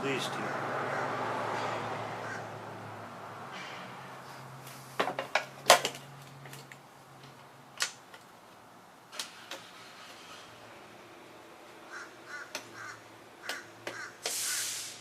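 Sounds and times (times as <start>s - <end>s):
small parts clicking and tapping: 5.0s - 9.7s.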